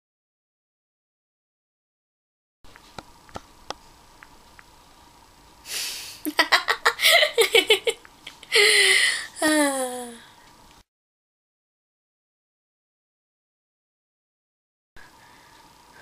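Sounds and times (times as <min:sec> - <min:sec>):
person gasping breaths: 0:08.5 - 0:10.4
person moaning: 0:08.6 - 0:10.2.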